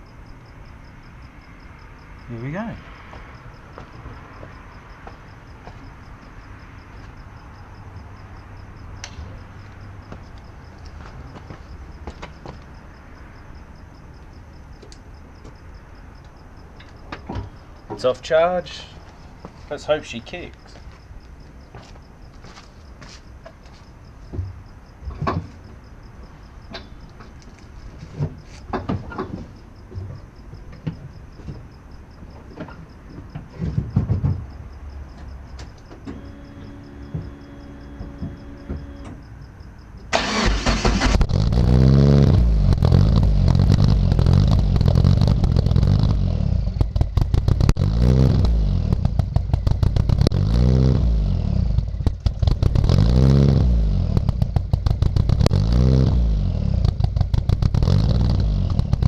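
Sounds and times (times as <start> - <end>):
car engine revving: 40.1 - 59.0.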